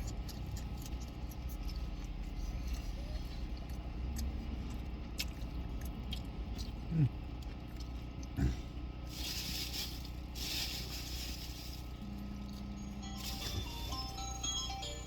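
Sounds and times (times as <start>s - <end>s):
low car cabin hum: 0.0s - 15.0s
food wrapper rustling: 9.0s - 12.0s.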